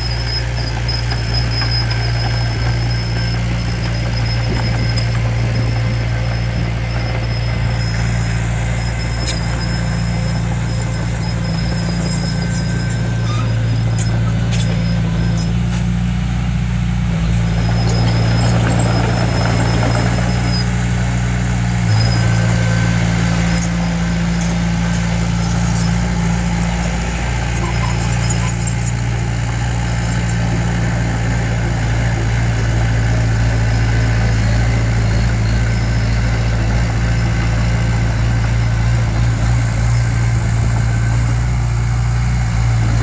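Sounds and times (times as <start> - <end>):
thin high squeal: 0.0 - 16.2, 21.9 - 30.9
diesel engine running: 0.0 - 43.0.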